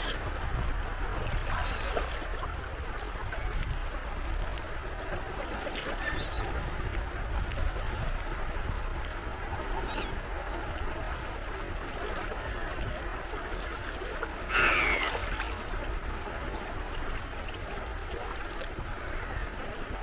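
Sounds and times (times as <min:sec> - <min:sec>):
sea waves washing at shore: 0:00.0 - 0:20.0
harsh bird call: 0:14.5 - 0:15.2.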